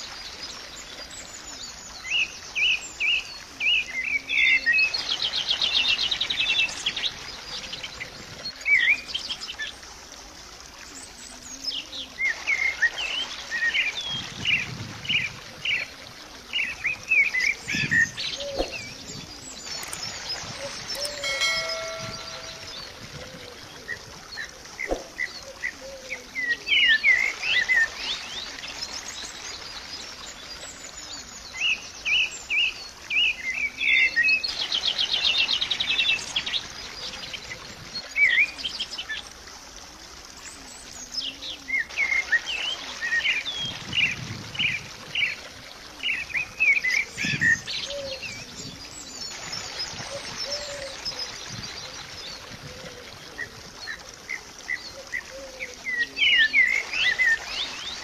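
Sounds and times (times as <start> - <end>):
birds chirping and singing: 16.6 - 27.9, 46.1 - 58.0
fast bird trill: 20.9 - 22.9.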